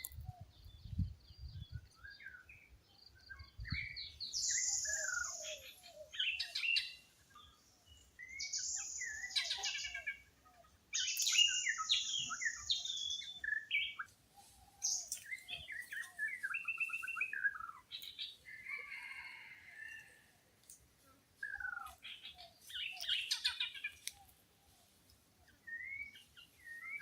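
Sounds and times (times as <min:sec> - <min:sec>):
wild birds singing and calling: 0:00.0 - 0:20.8, 0:21.4 - 0:27.0
high steady bird trill: 0:08.2 - 0:20.0.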